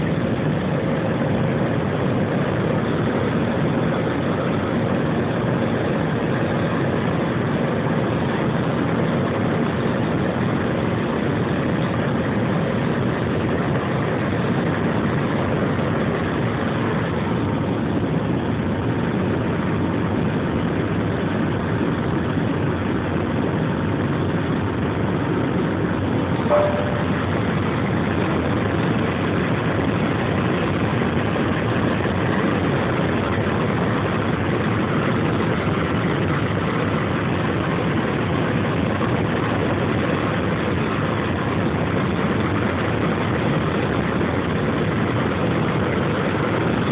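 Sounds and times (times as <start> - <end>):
jet engine and airflow roar: 0.0 - 46.9
click and short tone: 26.5 - 27.2.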